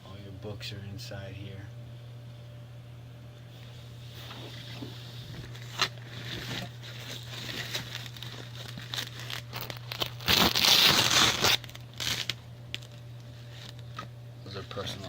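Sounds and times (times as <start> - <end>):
steady low hum: 0.0 - 15.0
items rustling and crinkling: 3.5 - 15.0.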